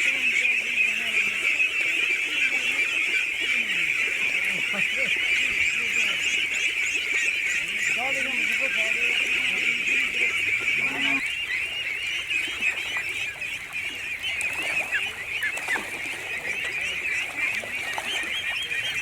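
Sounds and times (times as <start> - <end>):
fowl peeping: 0.0 - 19.0.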